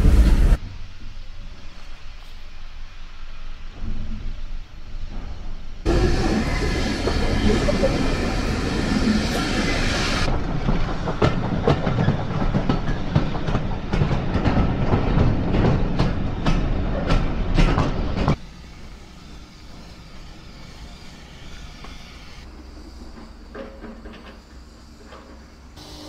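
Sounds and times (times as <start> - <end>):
train carriage rumbling on rails: 0.0 - 25.8
wheels clicking over rail joints: 10.3 - 18.4, 21.8 - 25.8.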